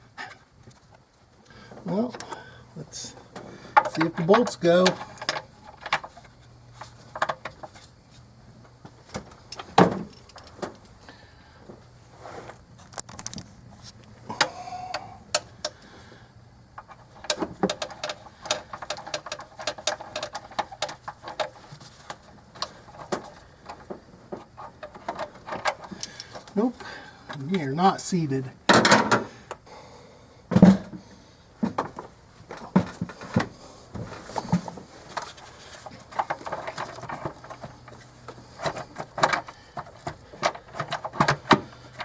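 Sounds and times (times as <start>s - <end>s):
parts and bolts clicking: 3.3s - 8.0s, 9.1s - 11.0s, 14.3s - 15.9s, 16.7s - 27.8s, 28.7s - 29.6s, 34.2s - 42.0s.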